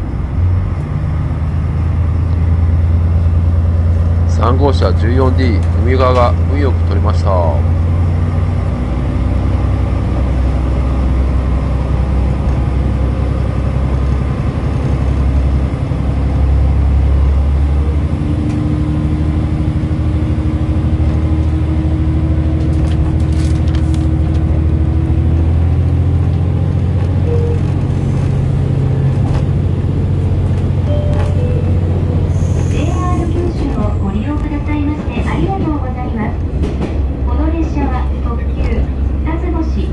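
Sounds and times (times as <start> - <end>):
railcar engine drone and rumble: 0.0 - 39.9
humming tone: 30.7 - 33.4.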